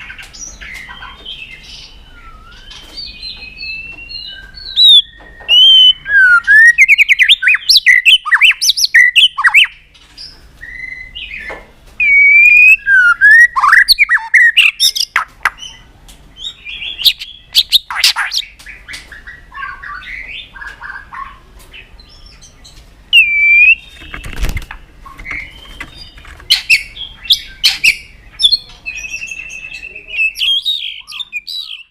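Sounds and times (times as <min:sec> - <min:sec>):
bird singing whistled phrases: 0:00.8 - 0:09.8, 0:10.6 - 0:15.8, 0:23.1 - 0:24.4, 0:26.5 - 0:31.9.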